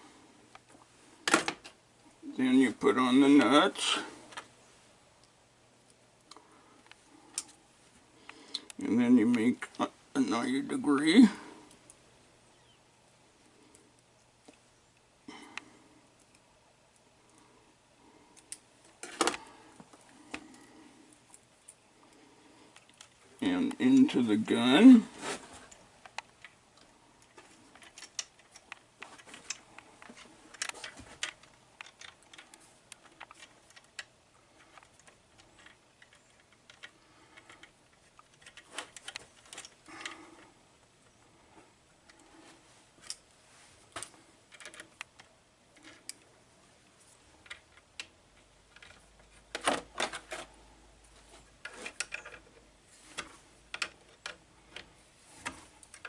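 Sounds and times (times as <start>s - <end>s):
metal parts clicking and tapping: 27.7s - 40.2s, 51.6s - 52.6s, 53.2s - 54.9s.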